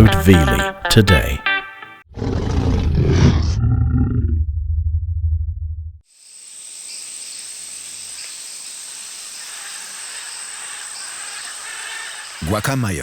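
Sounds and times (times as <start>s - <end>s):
low rumble: 2.8s - 6.0s
insect chorus: 6.0s - 13.0s.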